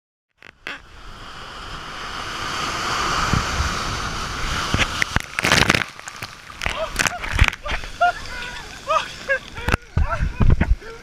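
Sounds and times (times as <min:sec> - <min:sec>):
ocean surf rushing: 0:00.7 - 0:11.0
wind buffeting microphone: 0:09.6 - 0:11.0.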